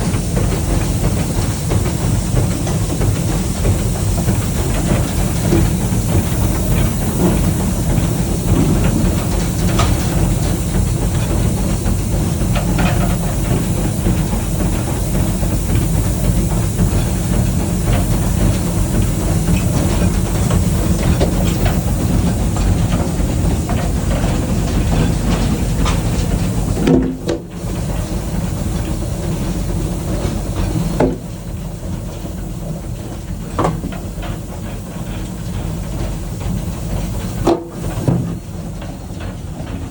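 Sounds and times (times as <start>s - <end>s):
hiss of steam: 0.0s - 38.1s
rail clicks: 0.0s - 39.9s
steam locomotive rumble: 0.0s - 39.9s.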